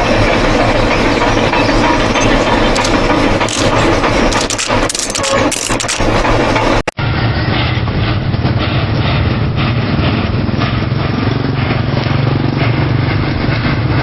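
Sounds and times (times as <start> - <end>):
steam locomotive rumbling and hissing: 0.0 - 14.0.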